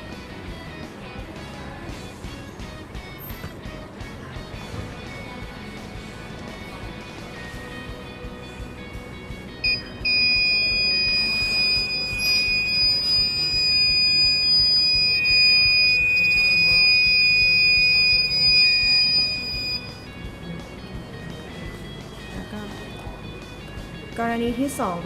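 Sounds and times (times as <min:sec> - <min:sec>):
high-pitched warning buzzer: 0:09.6 - 0:20.2.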